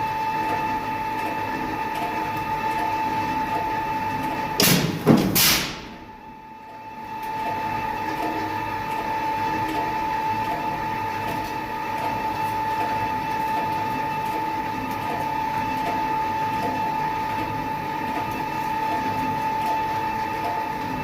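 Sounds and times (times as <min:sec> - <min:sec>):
high machine whine: 0:00.0 - 0:21.0
sheet metal press droning: 0:01.8 - 0:06.4.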